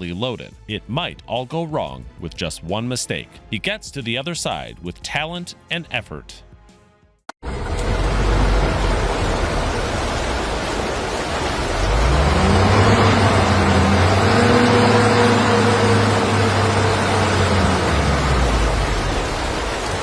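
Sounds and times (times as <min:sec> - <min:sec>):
truck engine revving: 0:07.4 - 0:20.0
loud rushing noise: 0:07.5 - 0:20.0.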